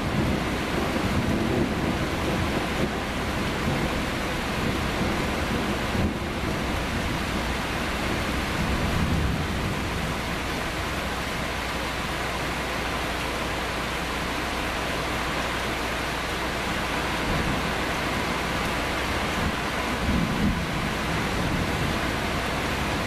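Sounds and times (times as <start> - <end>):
thunder rumbling: 0.0 - 15.1, 15.7 - 23.0
heavy rain: 0.0 - 23.0.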